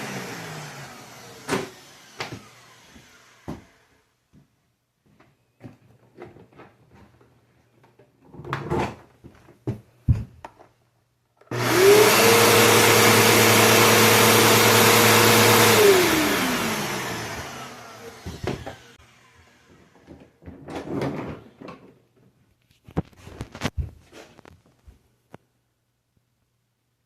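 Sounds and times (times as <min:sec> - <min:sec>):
vacuum cleaner motor whining: 0:00.0 - 0:04.0, 0:11.5 - 0:20.3.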